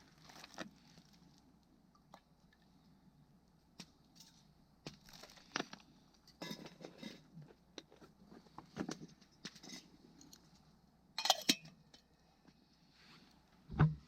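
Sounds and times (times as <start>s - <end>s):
packaging crinkling and rustling: 0.0s - 1.4s, 4.9s - 6.0s.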